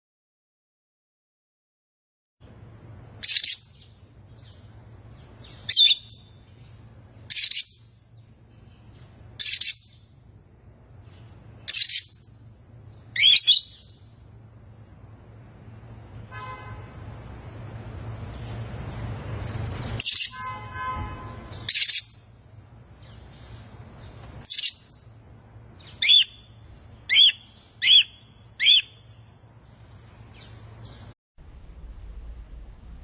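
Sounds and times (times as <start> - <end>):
steady low hum: 2.4 - 33.0
lovebird shrill calls: 3.2 - 3.9, 5.5 - 6.4, 7.3 - 7.8, 9.4 - 10.0, 11.6 - 12.2, 13.1 - 14.0, 20.0 - 20.5, 21.5 - 22.2, 24.4 - 25.0, 25.9 - 26.5, 27.1 - 29.2.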